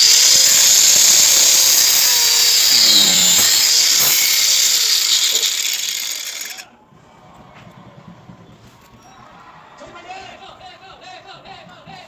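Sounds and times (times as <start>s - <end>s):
power tool running: 0.0s - 6.7s.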